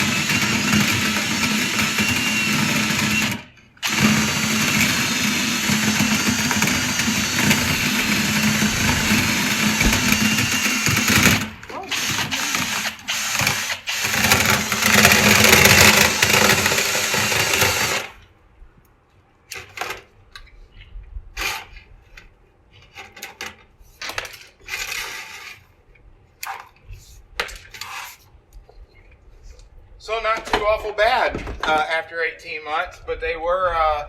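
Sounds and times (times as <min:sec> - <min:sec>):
vent cleaning machine droning: 0:00.0 - 0:18.1.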